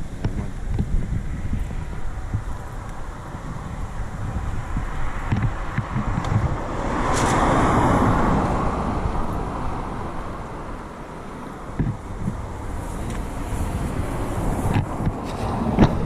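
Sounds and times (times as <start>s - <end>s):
wind buffeting microphone: 0.0s - 16.0s
vehicle passing: 0.6s - 16.0s.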